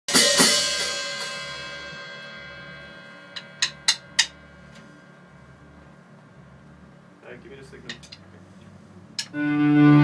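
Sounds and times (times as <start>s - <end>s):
cymbal struck and ringing: 0.1s - 5.6s.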